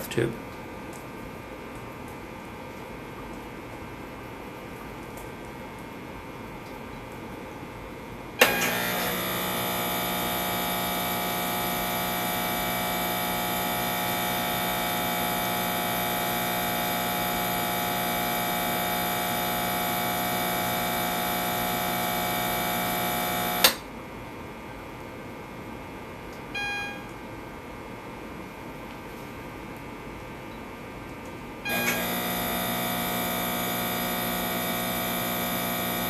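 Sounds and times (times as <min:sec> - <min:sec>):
air pump running: 0:08.4 - 0:23.8, 0:31.7 - 0:36.0.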